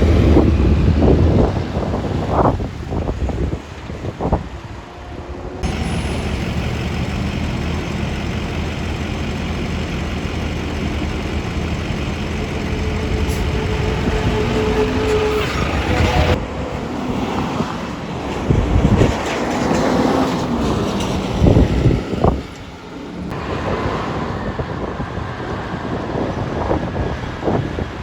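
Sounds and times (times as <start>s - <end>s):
road noise: 0.0s - 28.0s
garbage truck engine running: 5.6s - 16.4s
high squeal: 11.1s - 16.4s.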